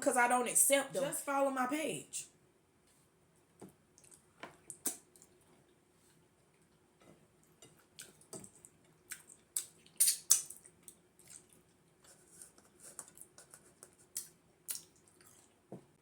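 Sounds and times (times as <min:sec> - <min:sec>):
wet chewing and lip smacks: 0:04.0 - 0:05.4, 0:07.4 - 0:15.6.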